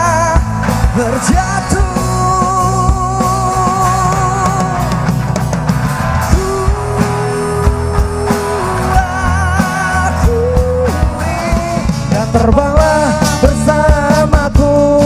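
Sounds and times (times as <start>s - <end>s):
rock band playing: 0.0s - 15.0s
person singing long wavering notes: 6.3s - 11.6s.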